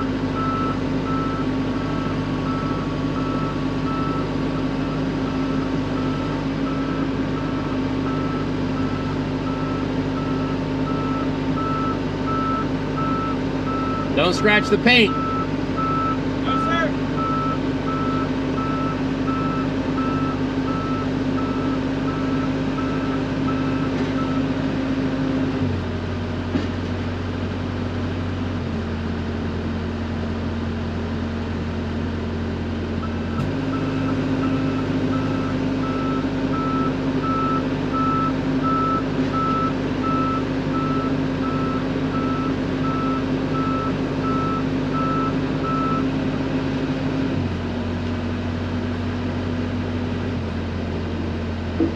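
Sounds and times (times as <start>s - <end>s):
diesel engine running: 0.0s - 51.9s
travel alarm beeping: 6.0s - 24.4s.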